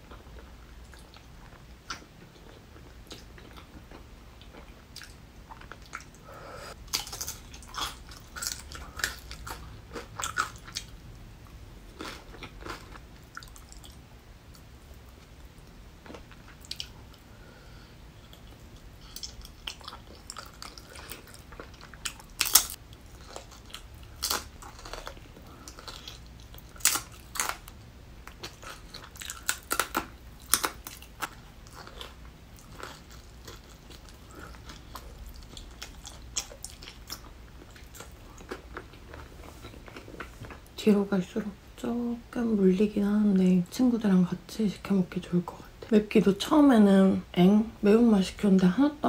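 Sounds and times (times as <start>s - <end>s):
chewing and biting food: 6.8s - 11.0s, 11.9s - 14.0s, 18.3s - 40.6s.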